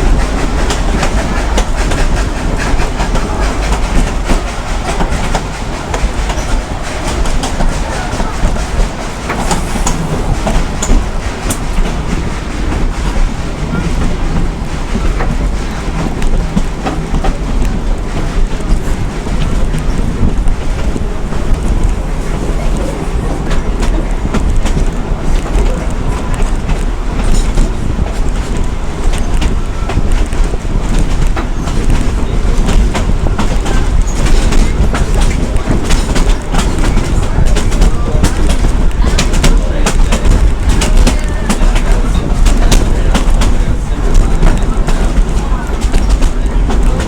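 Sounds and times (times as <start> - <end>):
train car rumbling: 0.0 - 47.0
wheels clicking over rail joints: 0.0 - 47.0.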